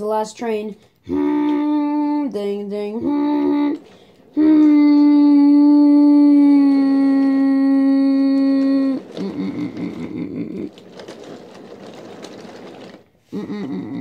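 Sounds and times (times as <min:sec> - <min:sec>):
rattling clatter: 0:03.3 - 0:05.4, 0:08.4 - 0:13.2.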